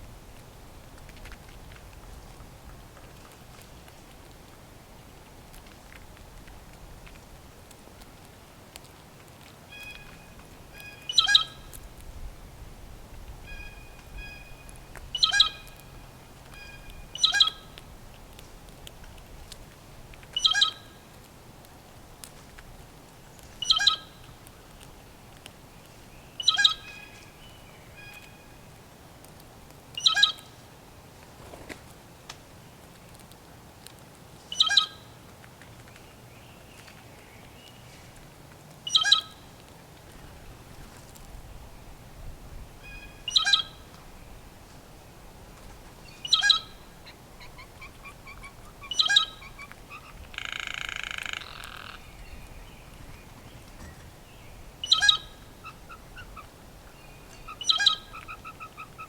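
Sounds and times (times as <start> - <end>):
bird calling loudly: 10.8 - 11.6, 38.9 - 39.4, 42.8 - 43.8, 46.2 - 52.2, 54.8 - 56.5, 57.4 - 59.0.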